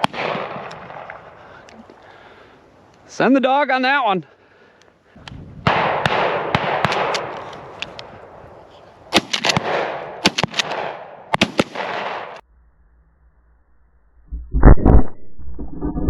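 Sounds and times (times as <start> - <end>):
shotgun shots: 0.0 - 1.3, 5.6 - 7.8, 9.1 - 12.4.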